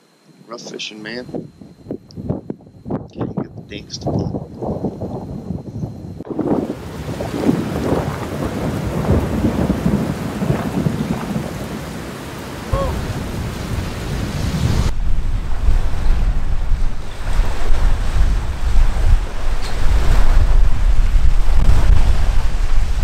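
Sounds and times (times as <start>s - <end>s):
wind buffeting microphone: 0.3s - 23.0s
waves slapping kayak hull: 6.3s - 23.0s.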